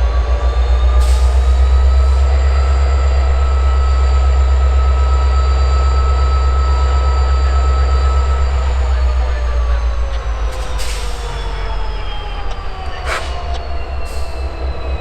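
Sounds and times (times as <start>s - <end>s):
diesel locomotive rumble: 0.0s - 15.0s
high-pitched wheel squeal: 10.6s - 15.0s.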